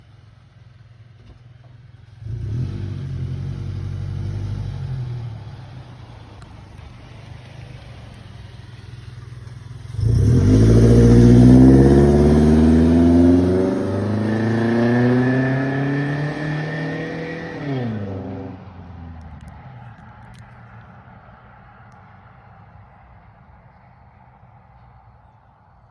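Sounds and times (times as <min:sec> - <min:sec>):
truck exhaust full-throttle: 0:07.9 - 0:15.9.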